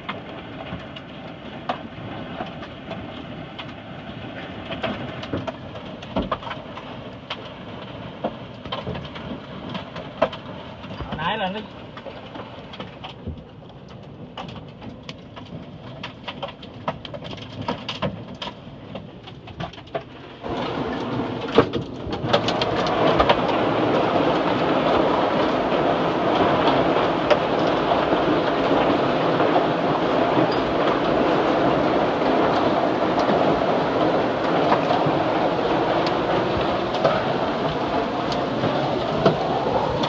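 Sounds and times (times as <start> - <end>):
hail striking a car: 0.0 - 40.0
rain drumming on a car: 0.0 - 40.0.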